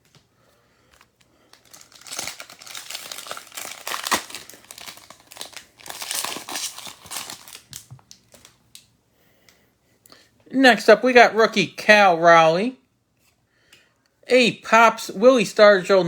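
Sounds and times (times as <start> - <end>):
card pack wrapper crinkling and tearing: 0.9 - 8.9.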